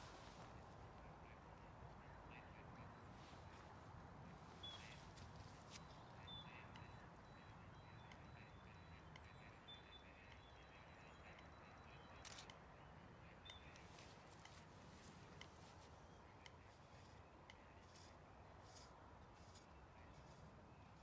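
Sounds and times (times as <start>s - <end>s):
camera shutter clicking: 12.2s - 12.5s.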